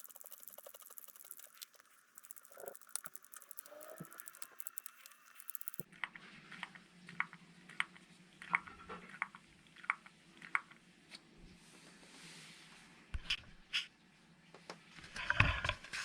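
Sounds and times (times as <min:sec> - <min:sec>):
dense fast clicking: 0:00.0 - 0:05.8.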